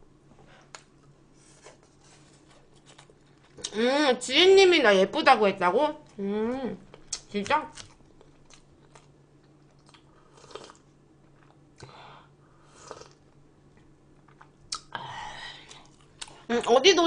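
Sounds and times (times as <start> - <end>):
person chewing food: 6.9 - 12.0, 12.7 - 14.9, 15.6 - 16.5.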